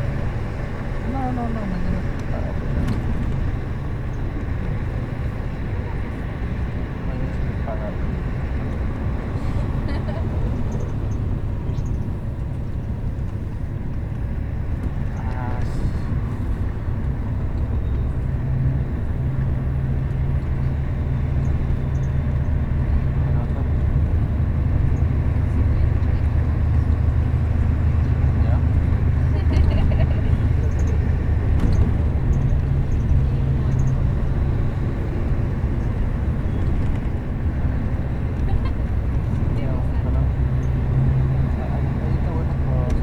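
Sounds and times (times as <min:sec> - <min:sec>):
bus engine hum: 0:00.0 - 0:43.0
road rumble: 0:00.0 - 0:43.0.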